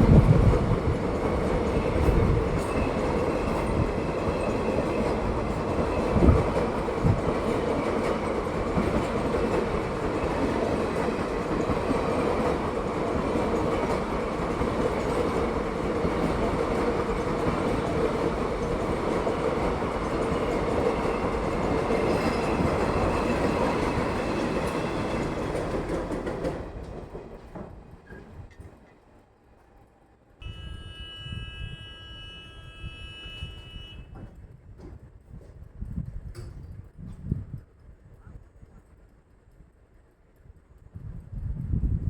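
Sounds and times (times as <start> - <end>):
train wheels rolling on rails: 0.0 - 31.5.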